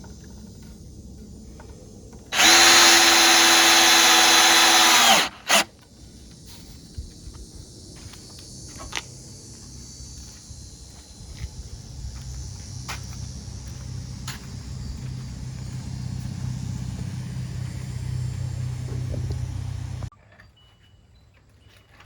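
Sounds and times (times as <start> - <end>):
power drill driving screw into wood: 2.3 - 5.7.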